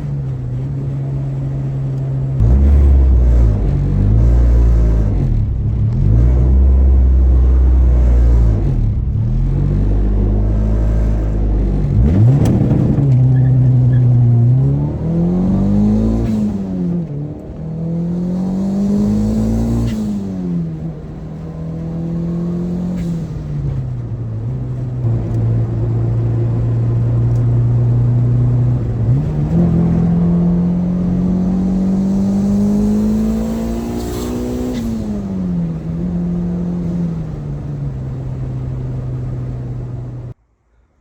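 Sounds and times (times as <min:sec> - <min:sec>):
car engine accelerating: 0:00.0 - 0:40.4.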